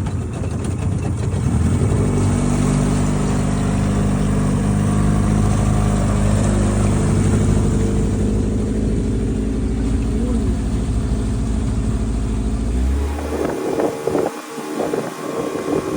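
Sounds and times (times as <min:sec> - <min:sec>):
boat engine running: 0:00.0 - 0:15.9.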